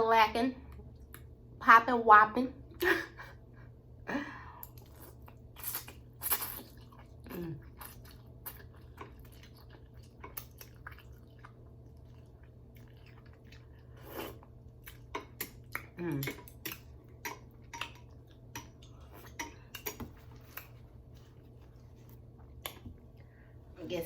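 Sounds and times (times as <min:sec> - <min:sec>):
person chewing noodles: 0:04.6 - 0:23.4.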